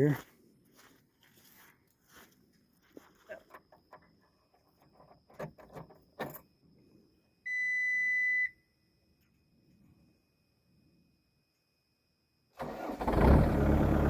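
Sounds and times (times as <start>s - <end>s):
knocks and clicks of climbing in: 3.4s - 6.5s
high electronic warning beep: 7.5s - 8.6s.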